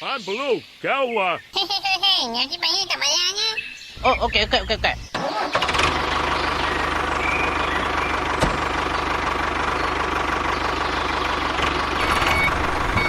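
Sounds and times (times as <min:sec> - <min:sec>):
engine idling with knocking: 0:05.7 - 0:13.0.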